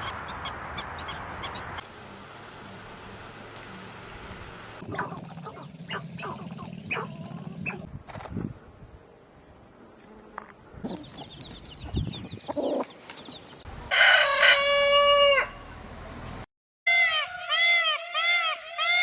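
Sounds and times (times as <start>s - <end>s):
chicks cheeping: 4.9s - 7.8s, 10.8s - 13.7s
chicken clucking: 10.9s - 13.6s
rooster crowing: 13.9s - 15.7s.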